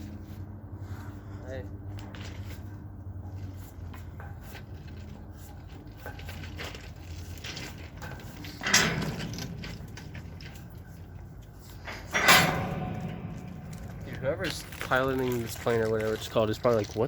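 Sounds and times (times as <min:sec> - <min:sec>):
aircraft drone overhead: 0:00.0 - 0:06.8
handling knocks and rustles: 0:01.8 - 0:17.0.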